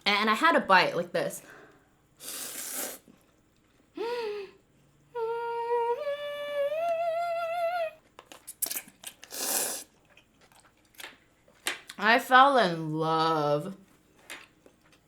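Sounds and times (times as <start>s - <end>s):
woman humming while eating: 4.0s - 8.1s.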